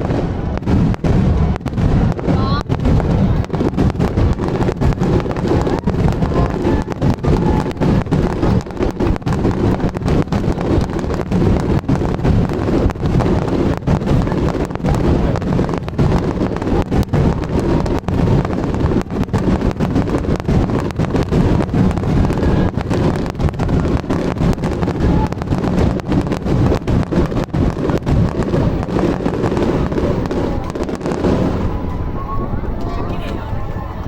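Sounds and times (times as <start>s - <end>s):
fireworks bangs and crackles: 0.0s - 34.0s.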